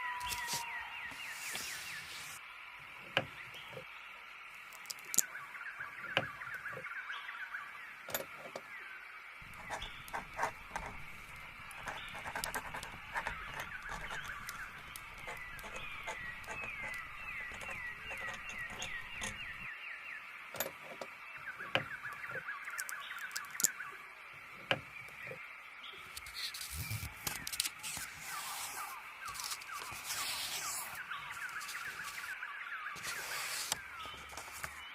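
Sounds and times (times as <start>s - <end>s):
songbirds chirping: 0.0s - 34.9s.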